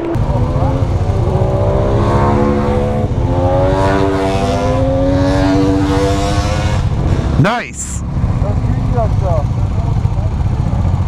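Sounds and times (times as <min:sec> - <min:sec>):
motorcycle engine accelerating: 0:00.0 - 0:07.4.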